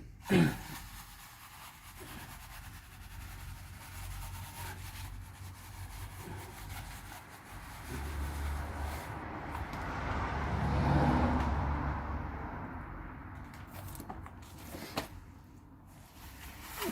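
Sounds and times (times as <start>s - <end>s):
tool scraping wet plaster: 0.3s - 9.7s, 16.2s - 16.9s.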